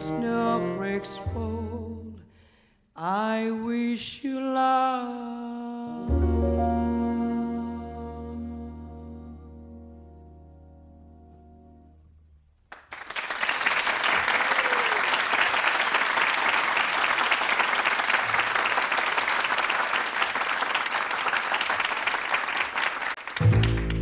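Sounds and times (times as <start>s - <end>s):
audience applauding: 12.7s - 24.0s.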